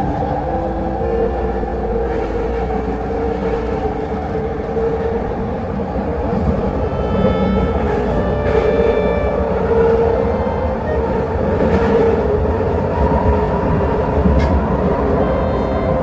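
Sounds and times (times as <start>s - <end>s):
train rail rumble: 0.0s - 16.0s
high whining tones: 6.5s - 12.8s.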